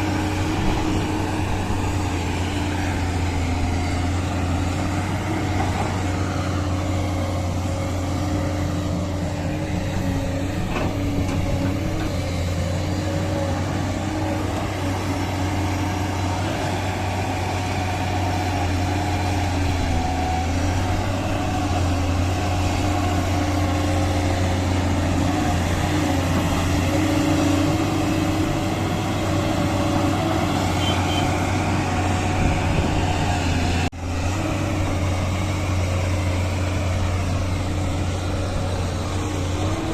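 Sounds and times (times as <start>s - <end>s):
earthmoving machine engines droning: 0.0s - 39.9s.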